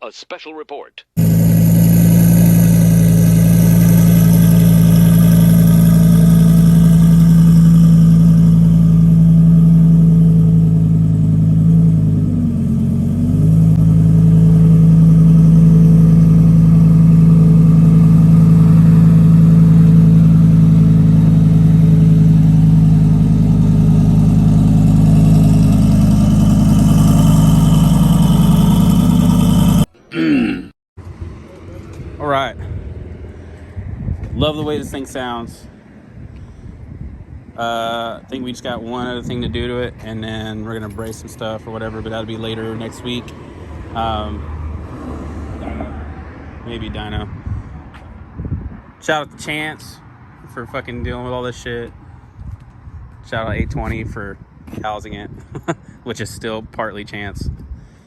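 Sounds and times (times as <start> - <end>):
car engine droning through exhaust: 1.2 - 29.9.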